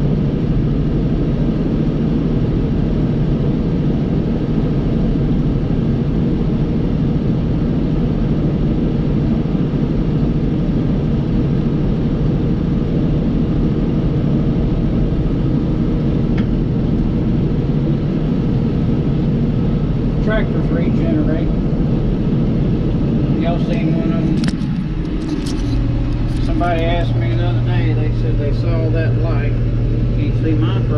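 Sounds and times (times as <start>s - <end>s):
tractor diesel engine droning: 14.8s - 30.9s.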